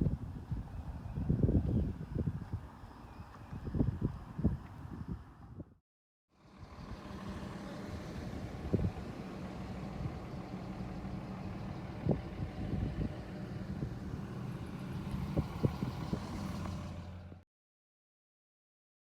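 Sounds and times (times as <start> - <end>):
vehicle engine idling: 6.4 - 17.4.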